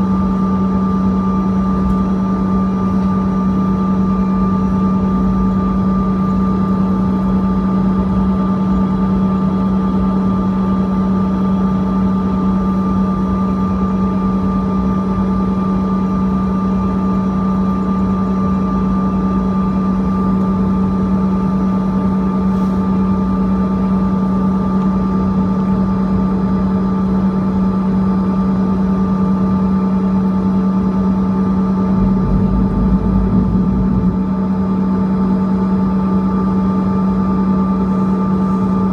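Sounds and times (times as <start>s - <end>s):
jet engine cabin drone: 0.0s - 38.9s
airflow noise: 31.1s - 36.2s.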